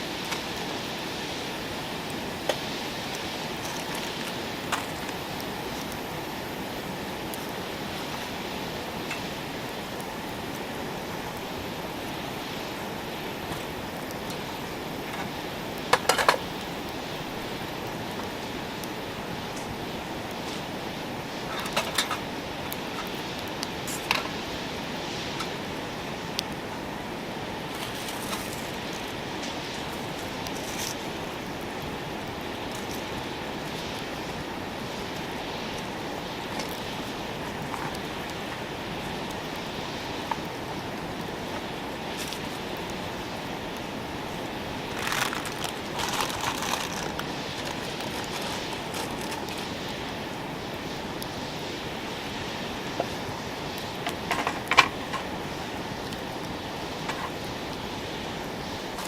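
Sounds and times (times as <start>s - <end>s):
campfire hissing: 0.0s - 59.0s
fire crackles and pops: 0.0s - 59.0s
steady rushing noise: 0.0s - 59.0s.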